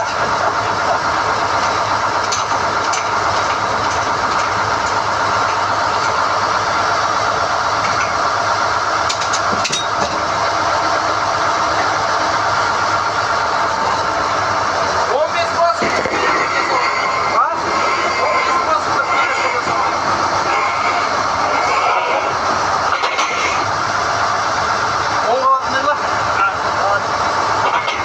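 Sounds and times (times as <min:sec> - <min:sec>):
drill rods clanking: 0:00.0 - 0:10.5, 0:15.0 - 0:23.7, 0:27.2 - 0:28.0
drilling rig running under load: 0:00.0 - 0:28.0.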